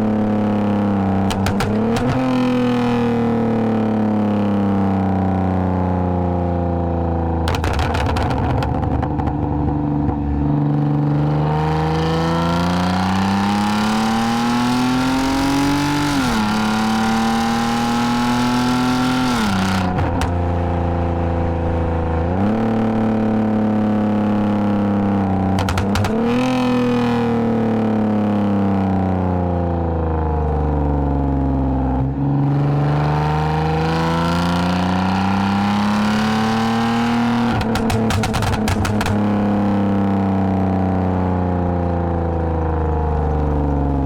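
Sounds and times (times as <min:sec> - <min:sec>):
car engine revving through exhaust: 0:00.0 - 0:06.2, 0:06.8 - 0:29.2, 0:30.8 - 0:43.9
exhaust crackles: 0:25.4 - 0:26.9, 0:37.4 - 0:39.9.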